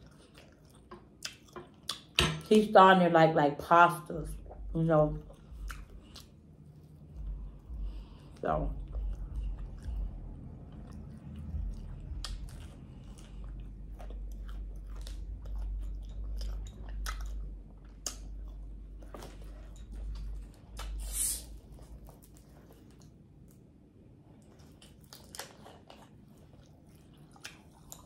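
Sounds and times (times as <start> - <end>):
chewing and wet mouth clicks: 0.0 - 2.2, 4.4 - 23.7, 24.3 - 28.0
bottle opening hiss: 21.0 - 21.5.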